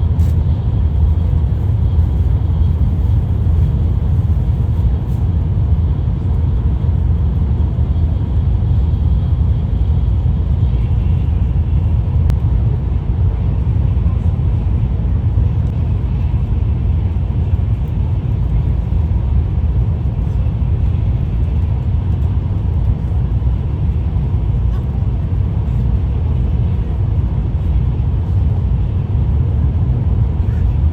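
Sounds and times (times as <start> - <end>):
train cabin low rumble: 0.0 - 30.9.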